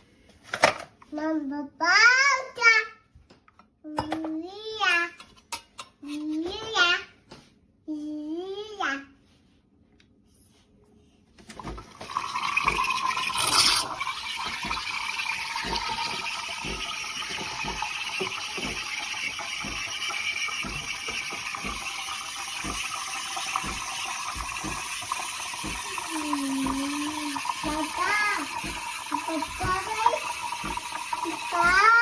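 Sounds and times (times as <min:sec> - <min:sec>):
espresso machine hissing: 0:12.2 - 0:32.0
low pump thumps: 0:14.2 - 0:31.8.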